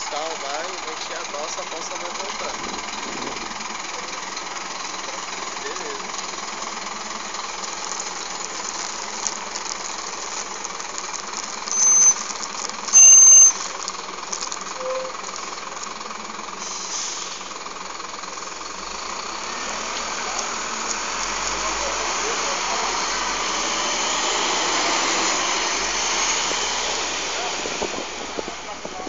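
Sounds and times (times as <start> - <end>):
bus diesel engine rattling drone: 0.0 - 29.0
high whistle tones: 11.7 - 12.2, 12.9 - 13.6.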